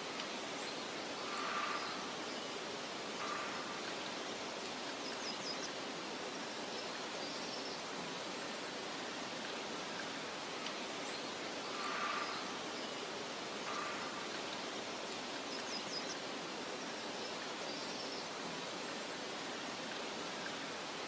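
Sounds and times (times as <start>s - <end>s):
soft wind hiss: 0.0s - 21.0s
faint bird chirps: 11.1s - 14.8s.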